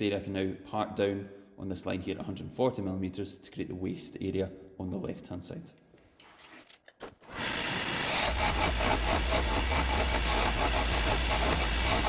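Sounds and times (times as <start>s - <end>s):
lathe motor hum: 7.3s - 12.0s
tool scraping spinning wood: 7.3s - 12.0s.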